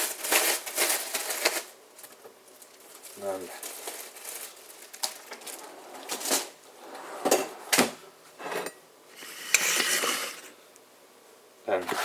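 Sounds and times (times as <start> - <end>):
scraping rustling sound: 2.6 - 7.7, 8.4 - 10.6
utensils and dishes clattering: 8.5 - 10.5.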